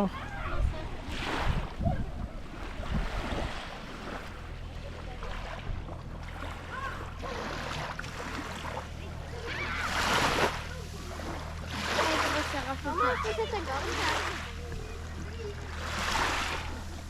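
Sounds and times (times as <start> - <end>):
wind on microphone: 0.0 - 4.4
small waves lapping: 0.0 - 17.0.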